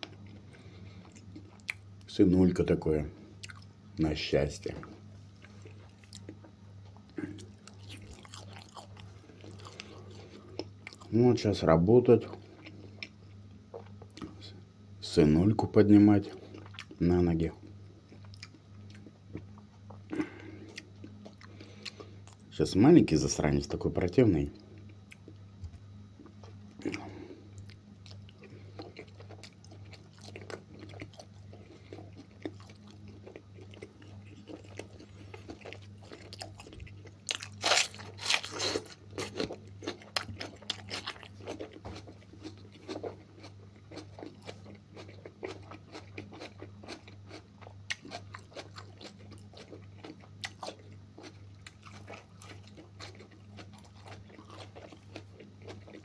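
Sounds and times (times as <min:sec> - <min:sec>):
man chewing: 0:00.0 - 0:01.8, 0:03.4 - 0:03.7, 0:04.8 - 0:11.1, 0:16.3 - 0:17.0, 0:18.0 - 0:22.5, 0:26.2 - 0:56.0
steady low hum: 0:00.0 - 0:56.0
crunching: 0:26.8 - 0:56.0.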